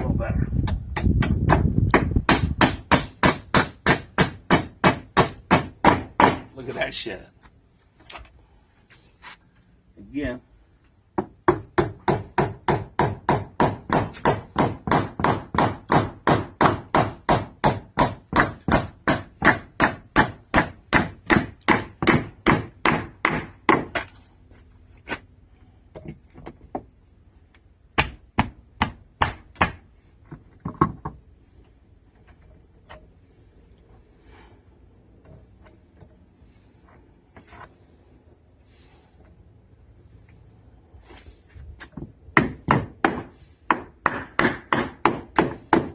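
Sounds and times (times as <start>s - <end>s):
hammer striking nails into wood: 0.7s - 6.5s, 11.2s - 24.1s, 28.0s - 29.8s, 42.0s - 45.9s.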